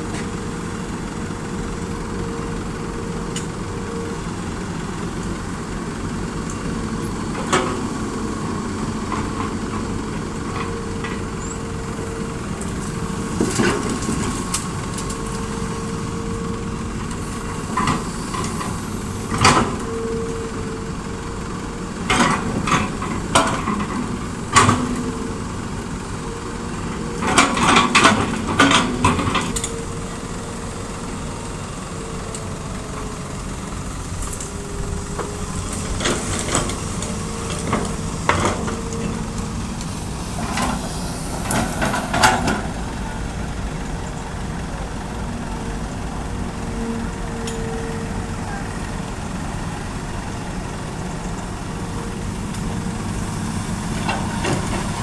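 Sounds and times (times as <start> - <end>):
diesel engine humming: 0.0 - 55.0
excavator bucket clanks and knocks: 27.2 - 29.8.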